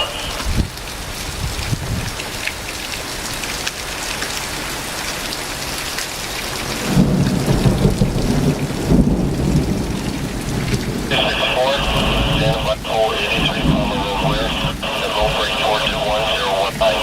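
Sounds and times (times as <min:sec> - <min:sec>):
heavy rain pouring: 0:00.0 - 0:17.0
low rumble of thunder: 0:00.4 - 0:02.2, 0:06.7 - 0:16.4.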